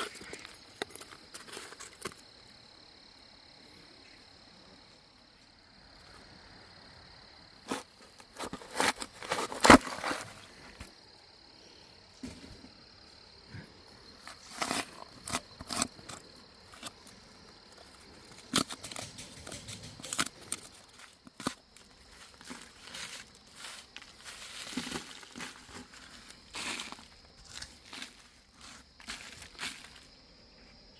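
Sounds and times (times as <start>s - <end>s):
crinkling rustles: 0.0s - 2.2s, 7.7s - 10.9s, 14.2s - 30.2s.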